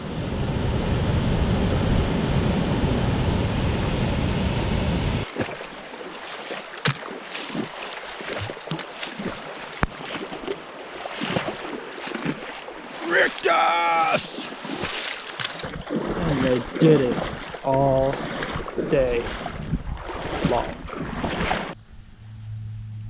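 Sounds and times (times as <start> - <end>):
canoe paddle knocks and splashes: 5.2 - 13.4, 14.4 - 21.8
water splashing and lapping: 5.2 - 21.8
wind buffeting microphone: 15.6 - 21.8.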